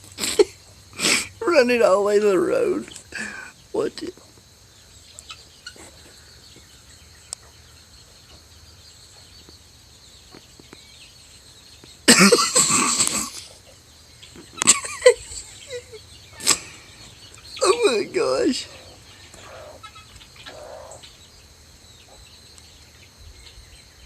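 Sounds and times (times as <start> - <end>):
faint steady background noise: 0.0 - 24.0
person coughing laughter: 12.1 - 13.5, 14.6 - 16.8.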